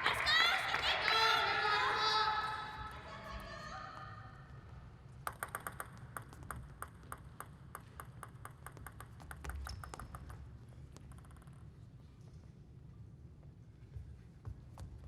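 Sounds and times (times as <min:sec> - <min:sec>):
table tennis ball clicking: 0:05.2 - 0:11.7.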